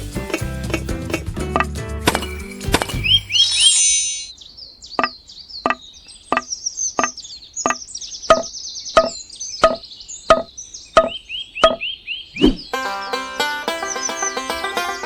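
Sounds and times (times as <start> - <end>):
high chirping: 2.1 - 4.4.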